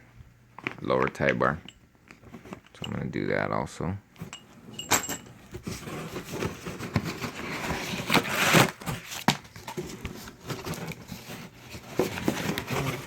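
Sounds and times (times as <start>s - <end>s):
packing material rustling: 5.4s - 13.0s.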